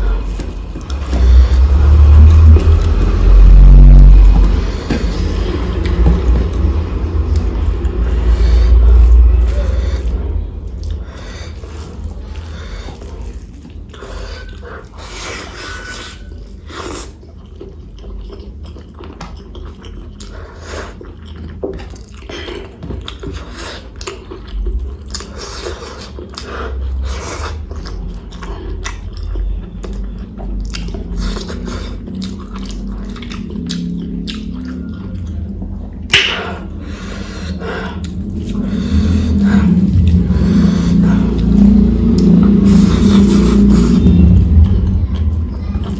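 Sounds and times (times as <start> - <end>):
low hum: 0.0 - 15.0, 28.0 - 45.9
person chewing food: 0.0 - 45.9.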